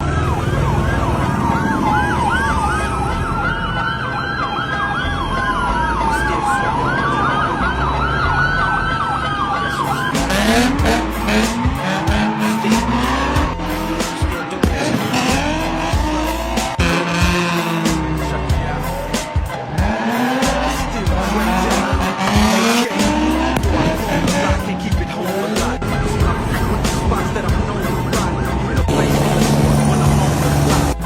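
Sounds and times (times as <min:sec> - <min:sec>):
police sirens yelping and wailing: 0:00.0 - 0:31.0
car engine revving with crackles: 0:10.1 - 0:27.4.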